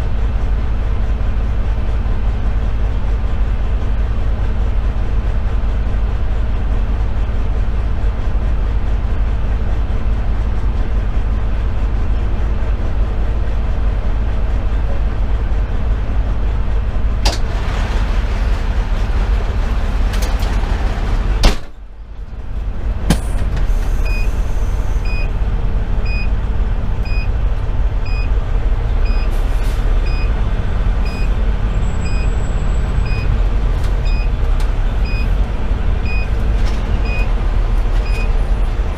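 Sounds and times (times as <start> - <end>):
diesel engine idling: 0.0 - 38.9
loud thump: 21.4 - 21.8.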